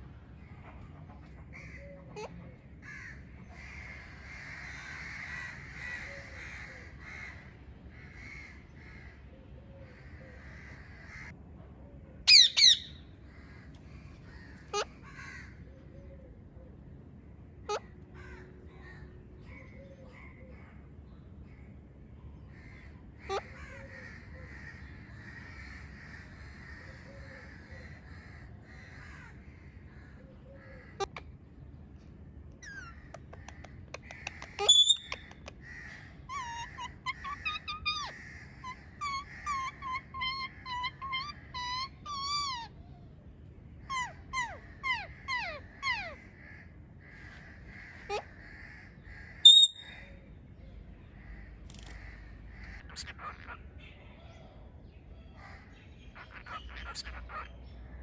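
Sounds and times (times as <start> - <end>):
parrot squawking: 2.0 - 2.4, 12.3 - 13.0, 23.2 - 23.5, 32.6 - 35.5, 36.3 - 42.8, 43.8 - 46.3, 47.9 - 48.4, 49.3 - 50.0, 51.8 - 53.8, 55.4 - 57.7.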